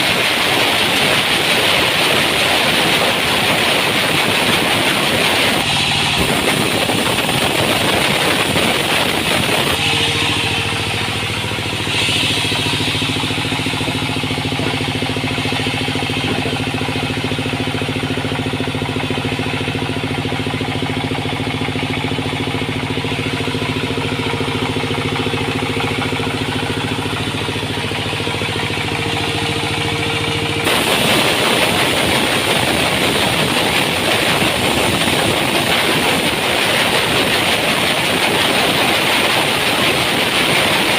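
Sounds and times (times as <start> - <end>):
sawmill machinery running: 0.0 - 40.9.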